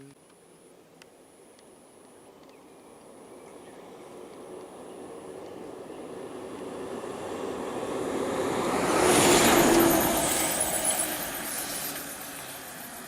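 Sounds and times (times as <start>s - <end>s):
road vehicle passing close by: 2.6s - 13.0s.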